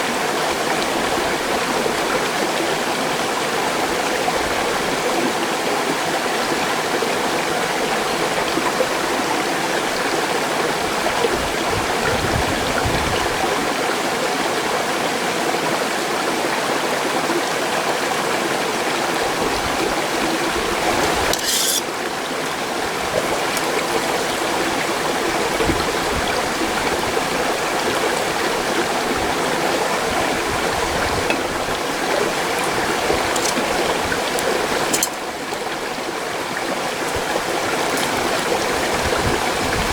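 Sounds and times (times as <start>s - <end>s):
stream rushing over rocks: 11.5s - 39.9s.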